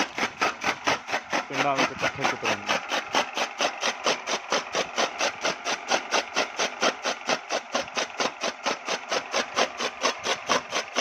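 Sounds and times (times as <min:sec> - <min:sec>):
chaff cutter machine beat: 0:00.0 - 0:11.0.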